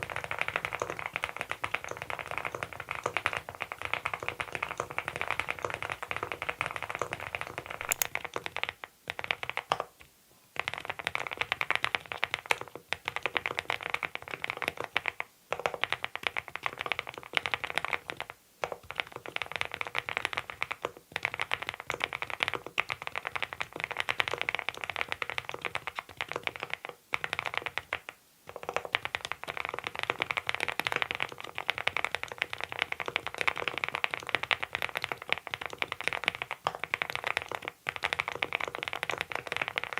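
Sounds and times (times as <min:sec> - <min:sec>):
fast typing on mechanical keyboard: 0:07.8 - 0:08.1.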